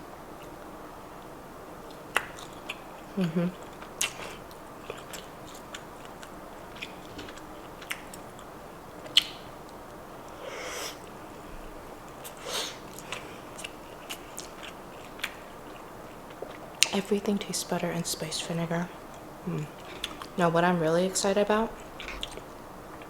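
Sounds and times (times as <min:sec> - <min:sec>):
mouth chewing with wet clicks: 0:00.4 - 0:10.4, 0:12.1 - 0:17.1, 0:19.0 - 0:20.4, 0:21.8 - 0:23.0.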